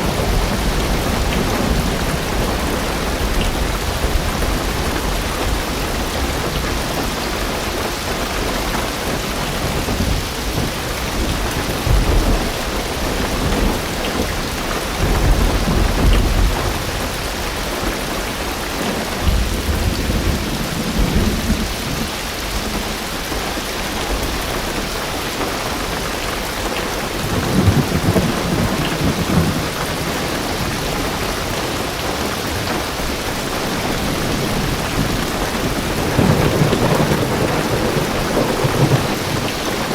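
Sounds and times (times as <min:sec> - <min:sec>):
heavy rain on car roof: 0:00.0 - 0:39.9
thunder rumbles: 0:00.0 - 0:39.9.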